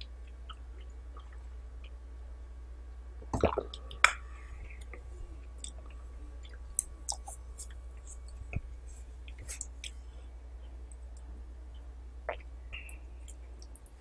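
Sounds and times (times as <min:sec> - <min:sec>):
low steady hum: 0:00.0 - 0:14.0
person chewing food: 0:04.8 - 0:10.1
mouth smacks and clicks: 0:05.6 - 0:08.7, 0:09.3 - 0:10.0.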